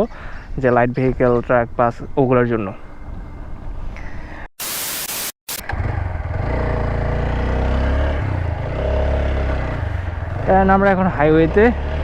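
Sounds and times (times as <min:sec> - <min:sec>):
motorcycle engine riding: 0:05.5 - 0:12.0.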